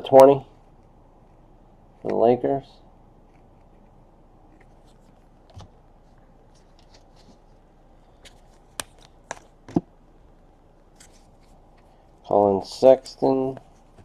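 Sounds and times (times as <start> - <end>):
cards sliding and rustling: 4.5 - 9.8, 10.9 - 12.0.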